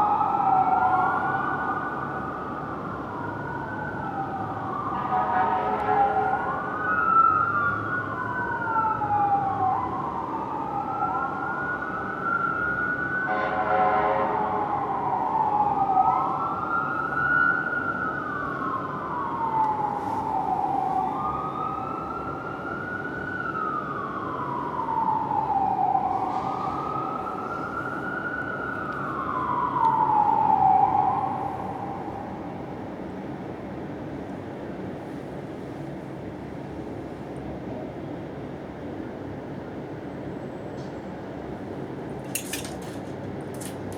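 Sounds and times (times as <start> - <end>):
sirens wailing: 0.0 - 33.7, 41.3 - 43.9
short horn blasts: 5.0 - 6.3, 13.3 - 14.6.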